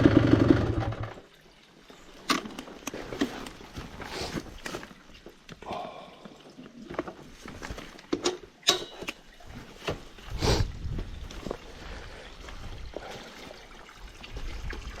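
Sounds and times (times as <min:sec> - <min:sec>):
fountain water trickling and splashing: 0:01.2 - 0:02.3, 0:11.7 - 0:15.0.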